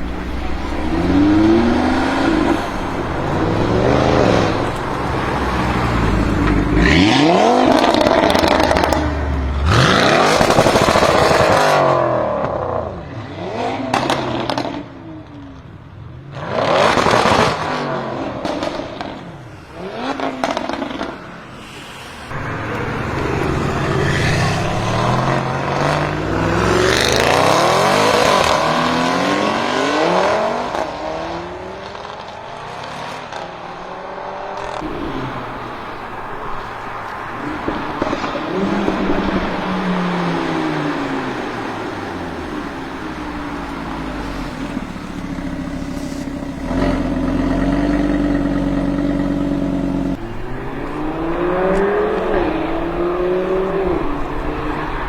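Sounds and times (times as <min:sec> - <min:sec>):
loud exhaust bursts: 0:00.0 - 0:08.8
car engine revving past: 0:00.0 - 0:14.8, 0:16.4 - 0:55.0.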